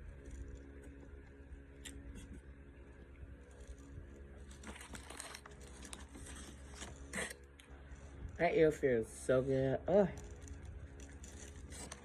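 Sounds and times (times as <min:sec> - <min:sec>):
steady low hum: 0:00.0 - 0:12.0
paper wrapper crinkling: 0:03.4 - 0:07.4, 0:10.1 - 0:12.0.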